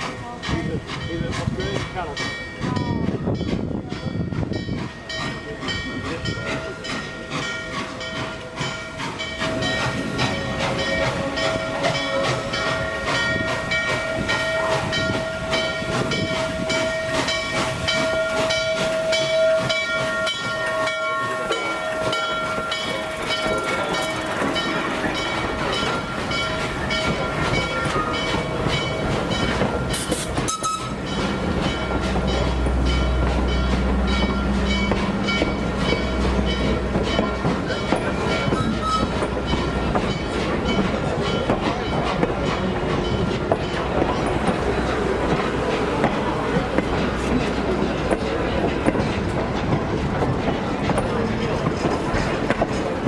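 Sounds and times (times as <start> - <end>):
locomotive bell ringing: 0.2 - 53.0
steam hiss: 5.8 - 32.1.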